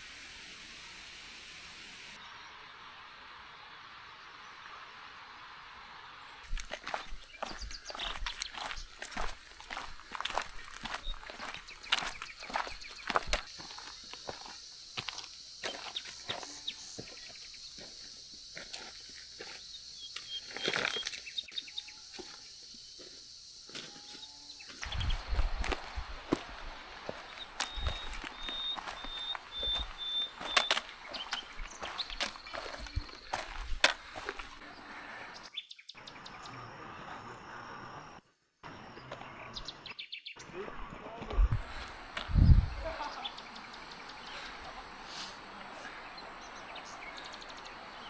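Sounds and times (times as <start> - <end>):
outdoor ambience hiss: 0.0 - 48.0
footsteps on a trail: 6.4 - 35.4, 40.5 - 47.9
faint bird chirps: 6.4 - 48.0
insects: 6.4 - 48.0.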